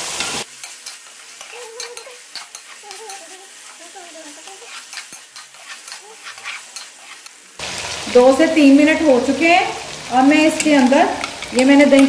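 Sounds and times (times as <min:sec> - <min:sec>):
metal spoon scraping a pan: 0:00.0 - 0:07.4, 0:10.5 - 0:12.0
chicken sizzling in oil: 0:00.0 - 0:12.0.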